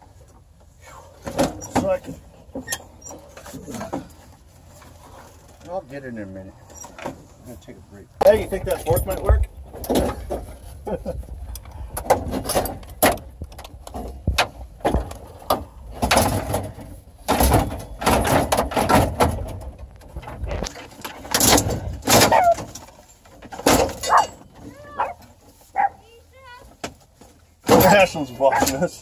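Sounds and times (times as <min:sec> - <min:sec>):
dashboard parts clattering and scraping: 0:00.1 - 0:05.9, 0:06.5 - 0:07.6, 0:08.2 - 0:29.0.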